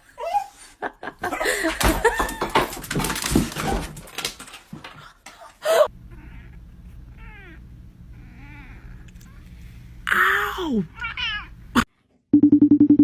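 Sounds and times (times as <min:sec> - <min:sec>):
steady low hum: 0:05.9 - 0:10.2.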